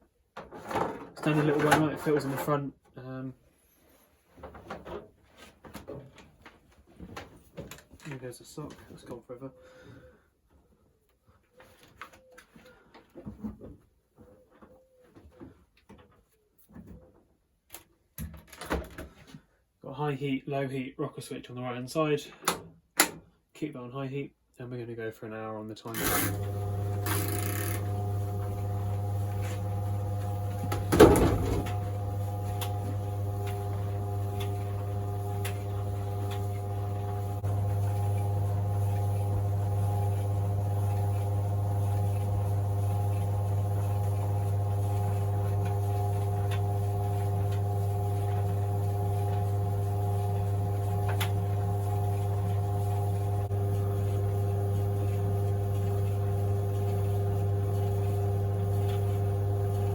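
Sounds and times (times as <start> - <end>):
tumble dryer motor hum: 26.0 - 59.9.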